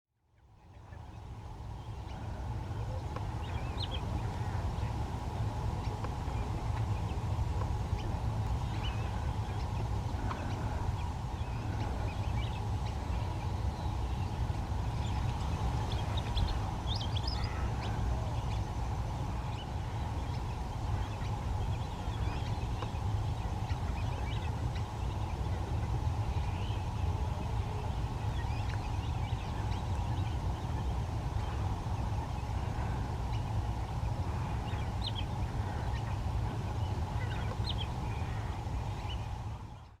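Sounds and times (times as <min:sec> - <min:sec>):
steady low rumble: 0:00.4 - 0:40.0.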